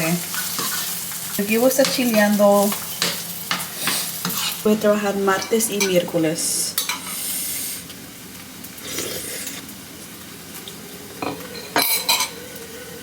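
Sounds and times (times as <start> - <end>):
food sizzling in a pan: 0.0 - 13.0
utensils clinking against dishes: 6.8 - 7.2, 11.2 - 12.4.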